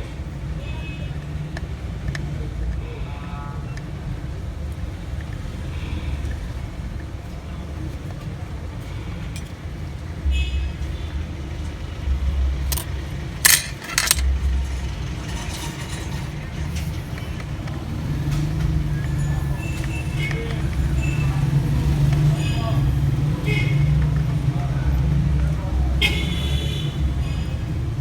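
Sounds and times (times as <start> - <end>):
hard objects clicking: 12.7 - 14.4.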